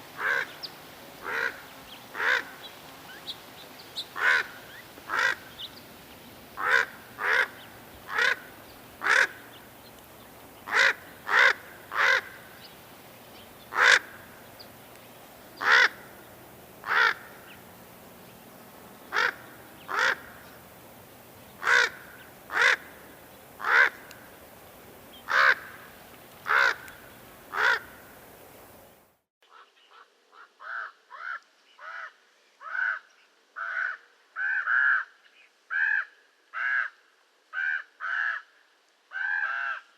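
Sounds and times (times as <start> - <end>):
background hiss: 0.0 - 39.9
raven calling: 0.2 - 3.4, 4.0 - 5.8, 6.6 - 9.7, 10.6 - 12.7, 13.6 - 14.5, 15.6 - 16.2, 16.8 - 17.6, 19.1 - 20.6, 21.6 - 24.3, 25.1 - 28.1, 29.5 - 39.9.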